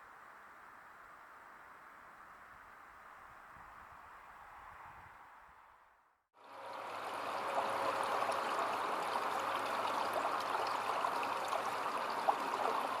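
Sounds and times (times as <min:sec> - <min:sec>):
stream water flowing: 0:06.4 - 0:13.0.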